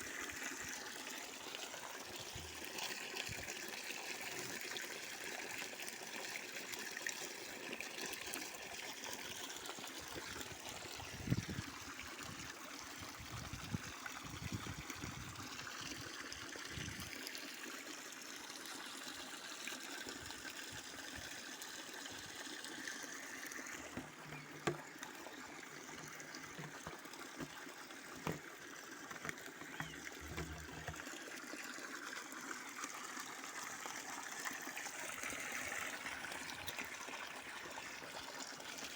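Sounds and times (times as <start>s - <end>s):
water trickling and splashing: 0.0s - 38.9s
brief knocks: 25.8s - 27.6s, 29.1s - 31.0s.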